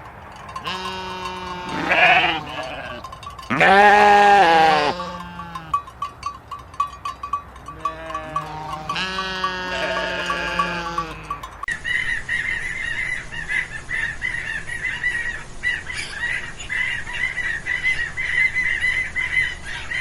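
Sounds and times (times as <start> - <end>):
sheep bleating: 0.6 - 5.8, 7.7 - 11.5.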